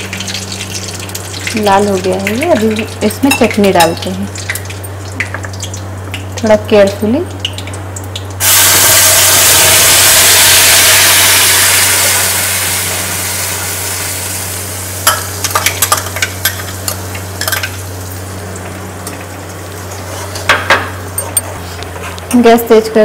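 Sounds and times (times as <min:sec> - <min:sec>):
paste sizzling in hot fat: 0:08.4 - 0:15.1.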